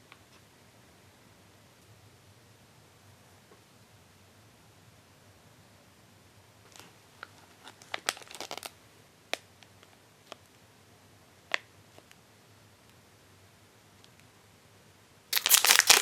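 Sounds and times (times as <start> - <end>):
plastic packaging crinkling: 6.7 - 8.8, 15.3 - 16.0.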